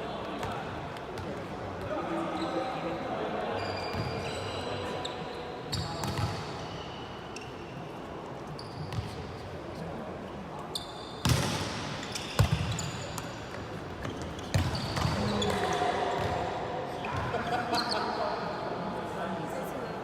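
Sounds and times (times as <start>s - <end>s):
shoe squeaks on court: 2.3s - 2.8s, 3.5s - 9.4s, 10.6s - 16.4s, 17.1s - 18.3s.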